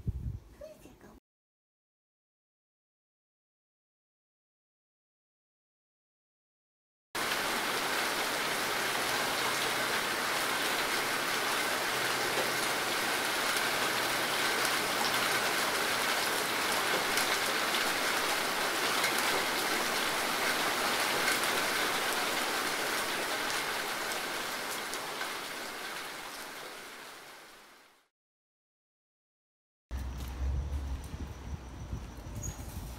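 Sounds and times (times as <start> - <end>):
heavy rain falling: 7.2 - 28.1.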